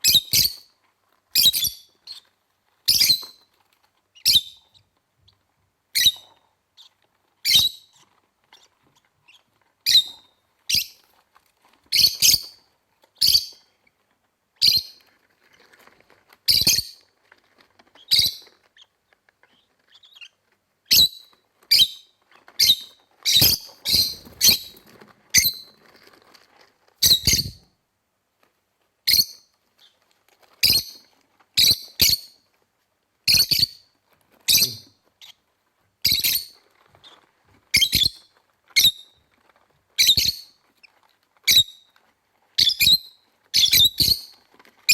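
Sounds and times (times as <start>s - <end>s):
lovebirds chirping: 19.5s - 25.8s, 34.5s - 35.4s, 42.6s - 44.9s.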